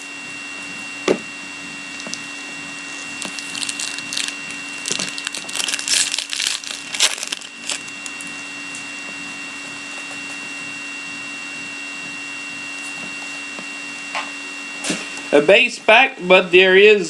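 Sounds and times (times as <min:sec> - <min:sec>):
electrical hum: 0:00.0 - 0:17.0
wrapper tearing and crinkling: 0:01.9 - 0:08.3.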